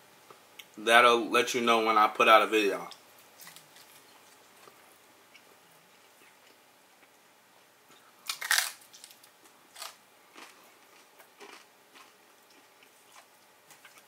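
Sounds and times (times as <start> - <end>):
crunchy taco shell chewing: 3.2 - 6.6, 8.2 - 14.0.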